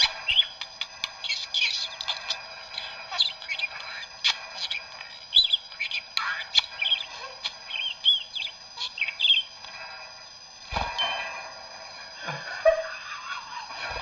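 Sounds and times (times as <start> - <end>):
parrot chirping and whistling: 0.0 - 0.6, 1.2 - 9.5.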